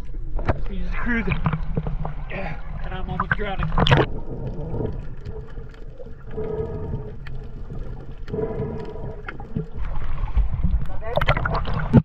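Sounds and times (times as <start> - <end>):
low underwater rumbling: 0.0 - 12.0
muffled underwater hum: 1.3 - 11.0
faint clicks: 3.2 - 10.0.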